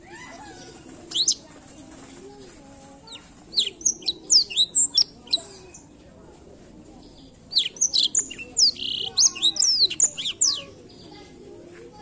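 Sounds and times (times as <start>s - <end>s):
canary singing: 0.5s - 1.5s, 3.0s - 5.8s, 7.5s - 11.0s.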